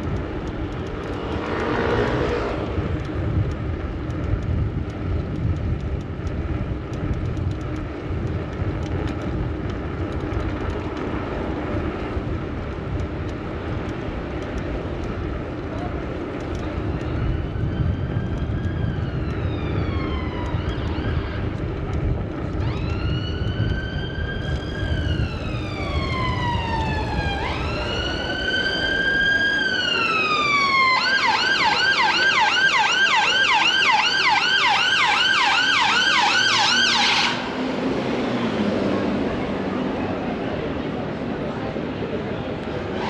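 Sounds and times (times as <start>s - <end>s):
low traffic rumble: 0.0s - 43.0s
emergency siren wailing and yelping: 16.9s - 21.6s, 22.6s - 37.6s.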